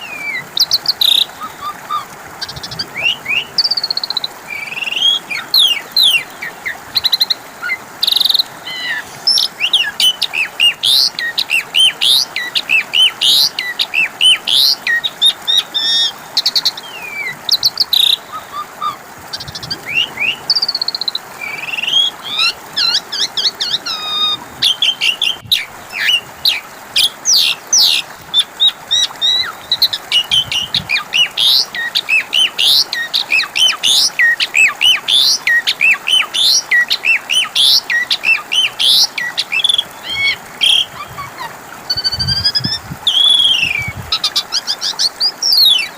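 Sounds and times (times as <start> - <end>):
starling singing: 21.6 - 44.7.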